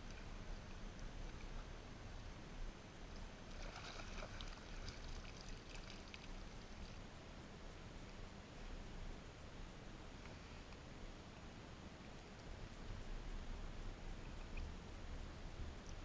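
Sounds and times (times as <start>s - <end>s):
water lapping and trickling: 0.0s - 2.4s, 3.0s - 7.2s
water splashing: 3.5s - 7.0s.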